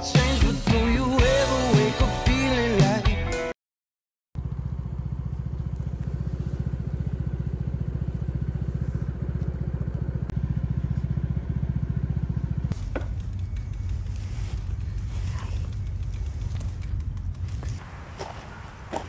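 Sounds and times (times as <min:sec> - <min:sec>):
engine running with low throb: 0:04.4 - 0:19.0.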